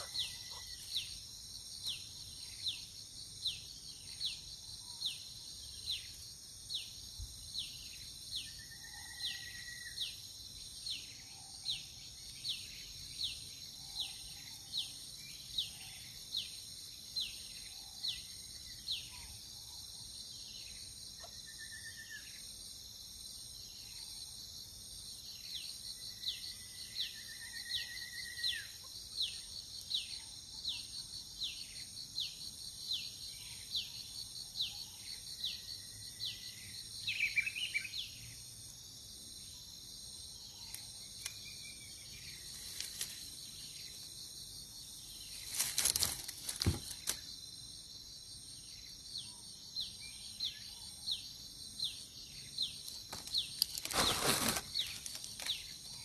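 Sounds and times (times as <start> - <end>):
loud rustling: 53.2 - 55.5.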